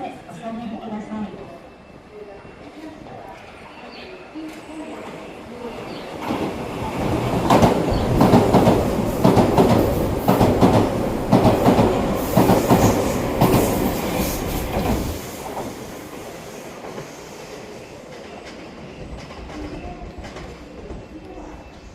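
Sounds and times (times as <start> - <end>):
train wheels clattering: 6.2 - 17.4.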